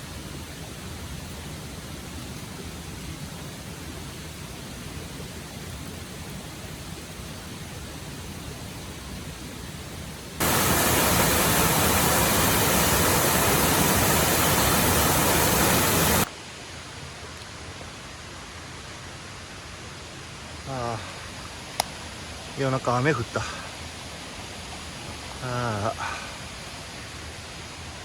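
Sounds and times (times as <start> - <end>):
rain falling: 0.0 - 16.3, 20.5 - 28.0.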